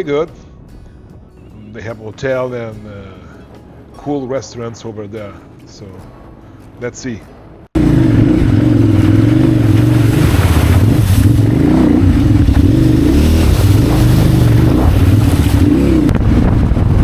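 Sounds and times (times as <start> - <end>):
wind noise: 6.1 - 17.0
motorcycle engine running: 7.8 - 17.0.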